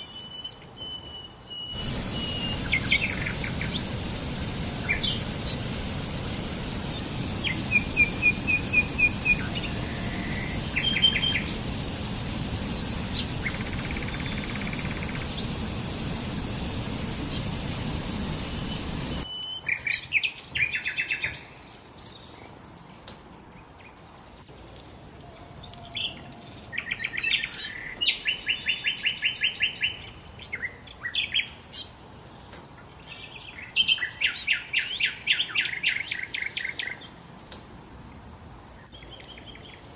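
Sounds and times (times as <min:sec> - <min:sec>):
songbirds chirping and trilling: 0:00.0 - 0:24.6, 0:25.2 - 0:39.9
rushing background noise: 0:01.8 - 0:19.3.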